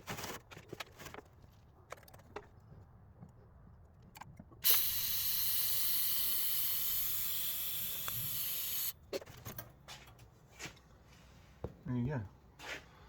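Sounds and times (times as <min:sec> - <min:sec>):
pressurised gas hissing: 0:04.6 - 0:09.0.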